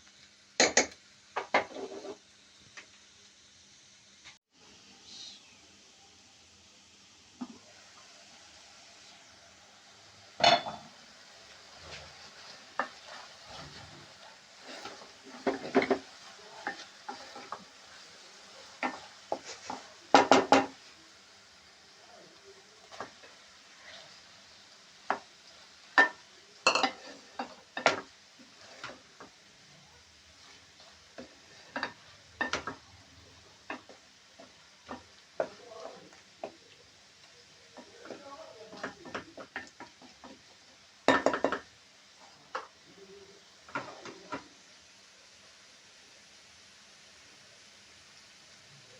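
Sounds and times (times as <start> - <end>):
faint frying sizzle: 0.0 - 48.9
spoon scraping cooking pot: 1.4 - 2.2, 26.0 - 29.3.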